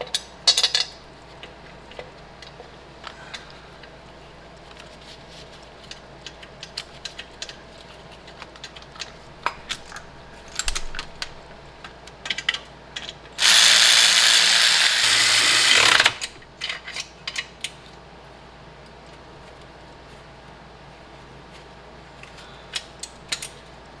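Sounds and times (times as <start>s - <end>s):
socket ratchet clicking: 13.4s - 16.3s
power tool running: 13.4s - 16.4s.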